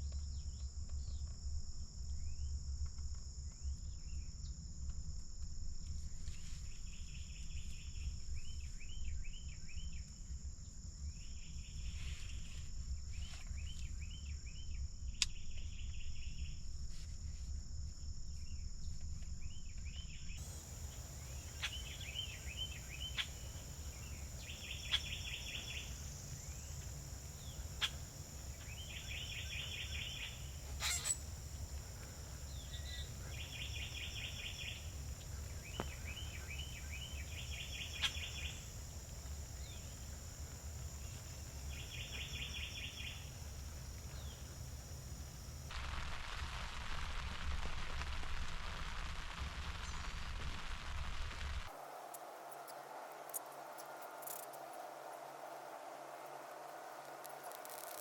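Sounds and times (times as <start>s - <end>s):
high insect drone: 20.4s - 45.7s, 51.7s - 58.0s
turkey yelping: 27.2s - 32.5s.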